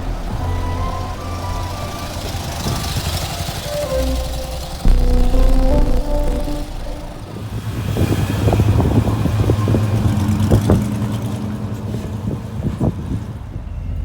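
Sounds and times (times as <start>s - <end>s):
car engine running: 0.0s - 8.1s.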